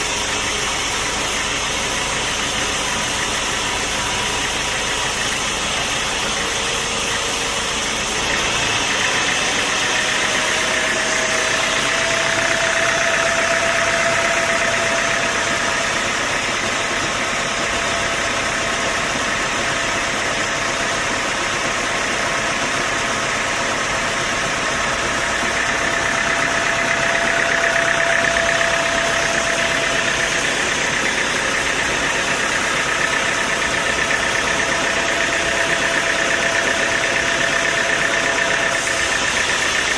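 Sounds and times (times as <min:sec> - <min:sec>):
sawmill machinery drone and whine: 0:00.0 - 0:39.9.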